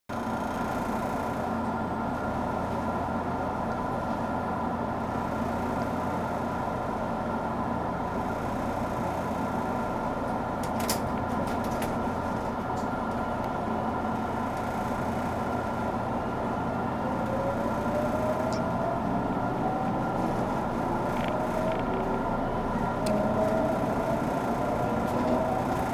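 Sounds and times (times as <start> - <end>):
electrical equipment hum: 0.1 - 25.9
rising inverter and motor tone: 16.6 - 25.9.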